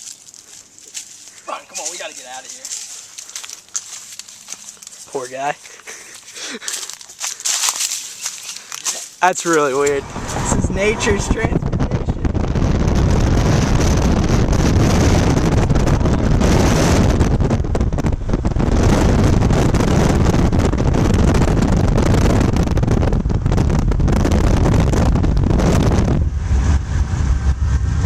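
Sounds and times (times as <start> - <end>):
wind buffeting microphone: 9.5 - 28.0.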